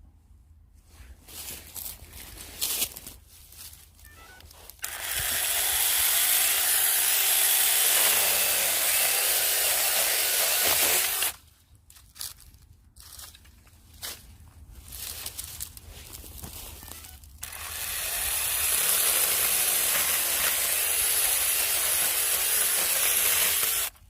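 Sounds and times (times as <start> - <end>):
chainsaw cutting branch: 4.8 - 11.4, 17.4 - 24.0.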